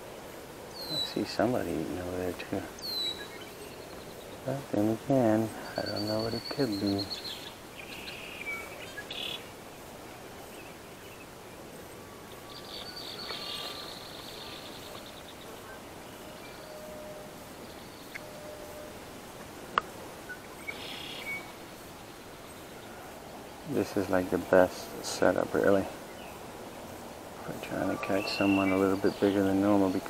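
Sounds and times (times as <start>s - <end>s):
birds chirping and trilling: 0.0s - 30.0s
faint outdoor hiss: 0.0s - 30.0s.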